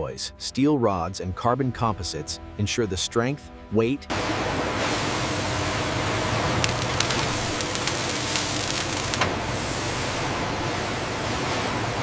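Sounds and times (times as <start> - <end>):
faint machinery hum: 4.1 - 12.0
machinery hiss: 4.2 - 12.0.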